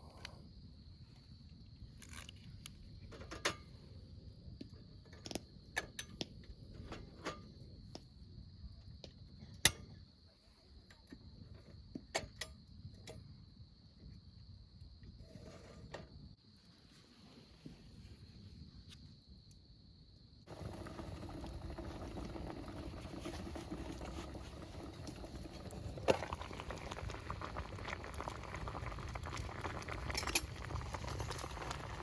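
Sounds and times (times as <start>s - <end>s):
insects trilling: 19.9s - 32.0s.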